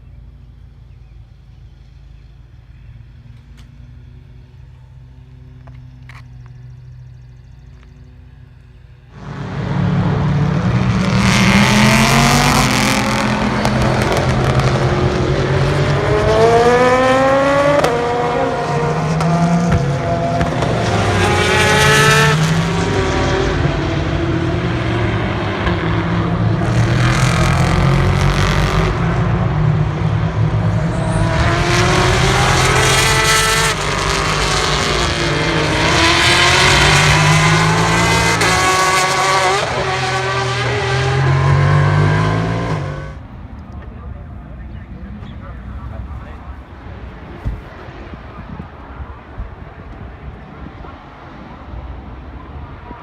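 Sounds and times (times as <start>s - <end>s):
race cars revving past: 9.1s - 43.4s.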